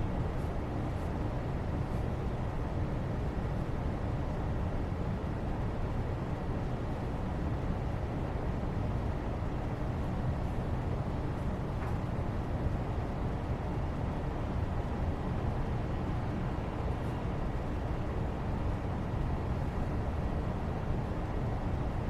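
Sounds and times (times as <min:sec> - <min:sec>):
deep rumbly background noise: 0:00.0 - 0:22.0.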